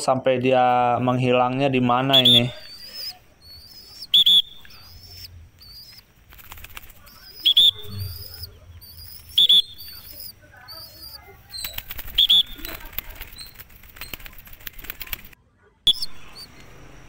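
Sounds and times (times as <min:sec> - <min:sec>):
thin high bird twittering: 0:01.8 - 0:17.0.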